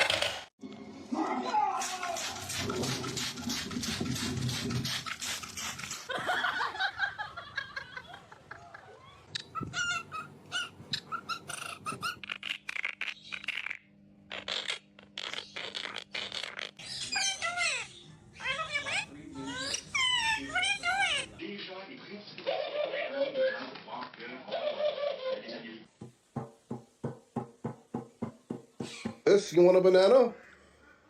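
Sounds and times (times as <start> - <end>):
parrot chirping and squawking: 9.0 - 21.4.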